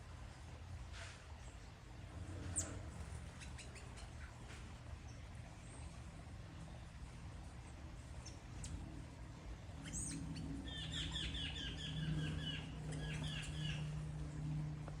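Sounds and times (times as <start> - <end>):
steady low hum: 0.0 - 15.0
bird chirping: 2.5 - 4.4, 9.8 - 14.0.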